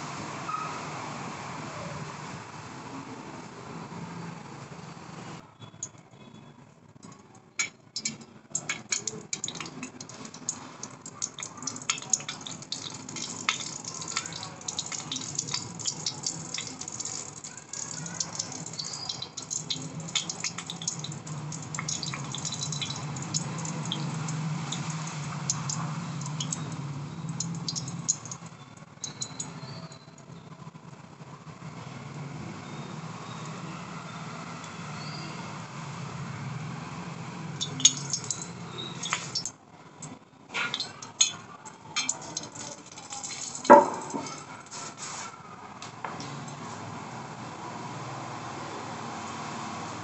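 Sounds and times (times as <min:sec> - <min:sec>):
metal tin crackling and ticking: 0:07.0 - 0:30.0, 0:37.6 - 0:45.0.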